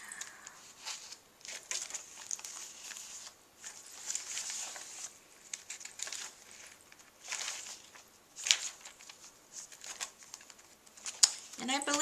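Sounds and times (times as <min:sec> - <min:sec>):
paper pages turning: 0:00.2 - 0:12.0.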